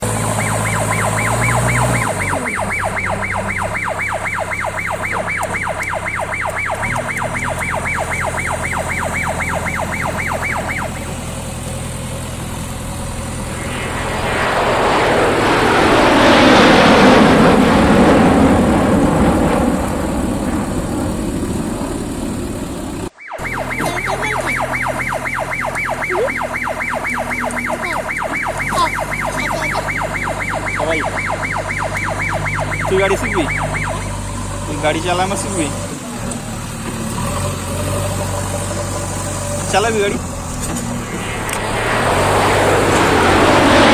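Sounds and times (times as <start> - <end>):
diesel engine running: 0.0 - 43.9
engine pulsing: 0.0 - 43.9
broad rushing noise: 12.8 - 23.2, 40.0 - 43.9.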